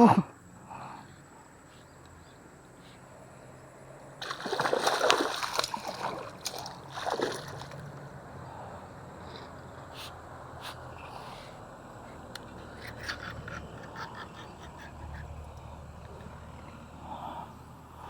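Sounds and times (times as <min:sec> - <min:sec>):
fish splashing at water surface: 0:04.2 - 0:08.1.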